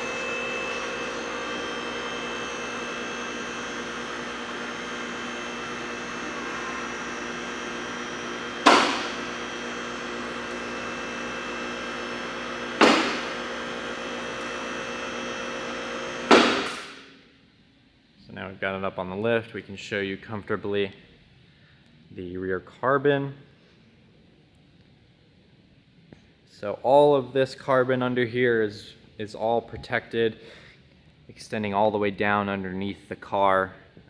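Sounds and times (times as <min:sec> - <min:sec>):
electric motor humming: 0:00.0 - 0:17.0
loud metal clunks: 0:08.6 - 0:09.2, 0:12.8 - 0:13.4, 0:16.3 - 0:17.0.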